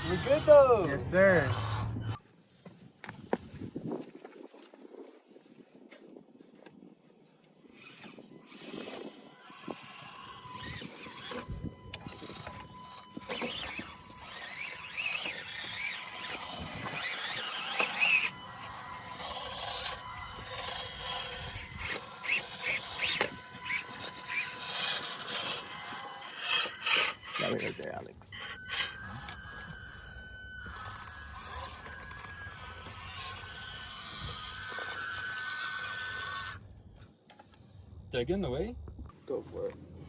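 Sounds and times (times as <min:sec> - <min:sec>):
small electric motors whining: 0:00.0 - 0:02.2, 0:06.6 - 0:38.1
tyres scraping on rock: 0:13.2 - 0:29.4.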